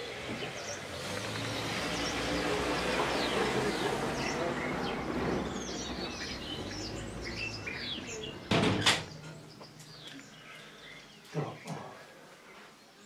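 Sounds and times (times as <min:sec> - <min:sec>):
small birds chirping: 0:00.0 - 0:13.0
loud knocks: 0:08.5 - 0:09.1.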